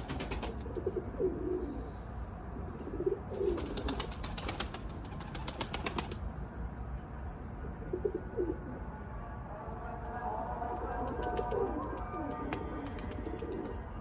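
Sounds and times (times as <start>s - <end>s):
pigeons cooing: 2.8s - 4.2s, 11.2s - 13.8s.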